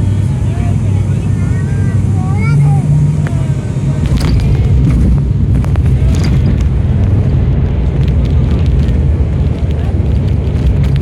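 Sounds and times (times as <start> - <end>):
airliner cabin engine rumble: 0.0 - 11.0
knocks and rattles: 4.0 - 11.0.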